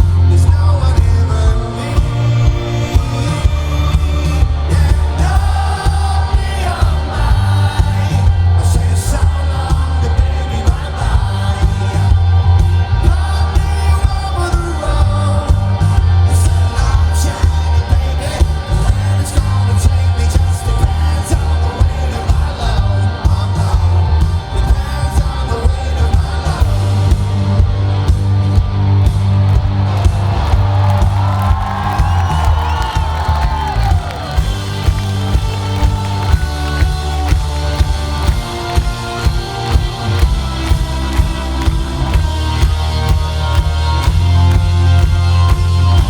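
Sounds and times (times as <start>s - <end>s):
person singing: 0.0s - 27.5s
live rock band playing: 0.0s - 46.0s
crowd shouting along: 2.2s - 27.4s, 28.0s - 46.0s.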